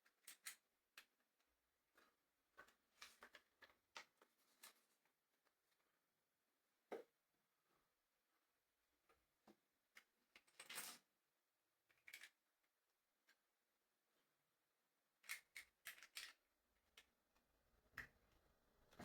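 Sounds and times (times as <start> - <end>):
plastic toy bricks clicking: 15.2 - 16.4.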